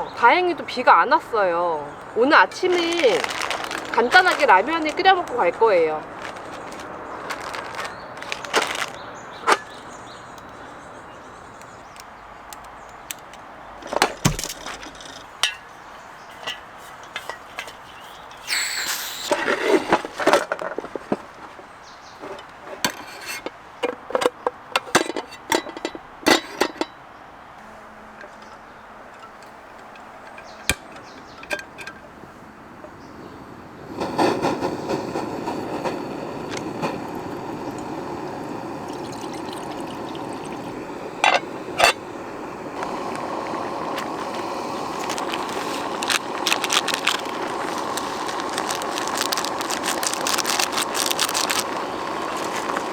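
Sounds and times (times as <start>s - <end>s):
cooking gear clinking and knocking: 2.4s - 10.5s, 11.6s - 18.6s, 29.1s - 32.2s, 36.4s - 42.1s, 42.8s - 52.9s
rushing hiss: 16.8s - 20.1s, 33.0s - 52.9s.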